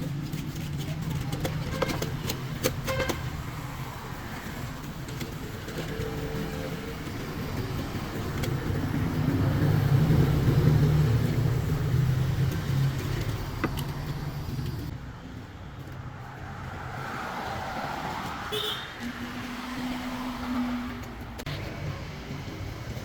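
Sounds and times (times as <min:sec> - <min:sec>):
vehicle engine running: 0:03.4 - 0:15.0.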